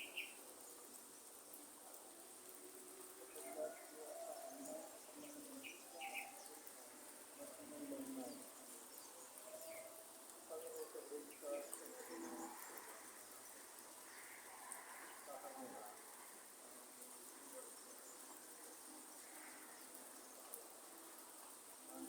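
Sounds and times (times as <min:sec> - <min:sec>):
doves cooing: 0:01.7 - 0:13.2.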